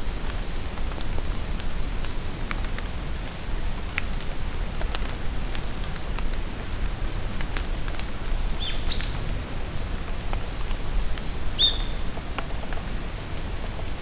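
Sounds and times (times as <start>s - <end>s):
steady rain falling: 0.0s - 14.0s
raindrops ticking: 0.2s - 14.0s
bird chirps: 10.5s - 12.0s
rising bird call: 11.6s - 12.0s.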